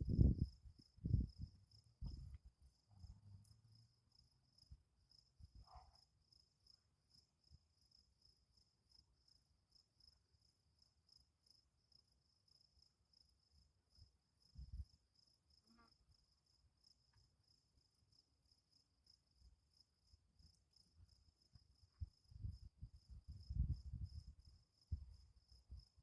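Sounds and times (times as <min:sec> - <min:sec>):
faint crickets chirping: 0:00.0 - 0:26.0.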